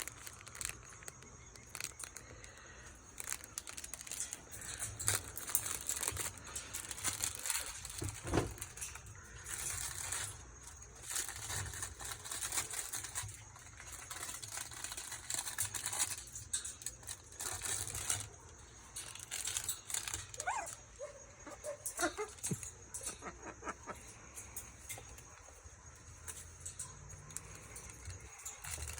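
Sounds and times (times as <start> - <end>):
parrots tearing a toy: 0.0 - 18.4, 19.0 - 20.8.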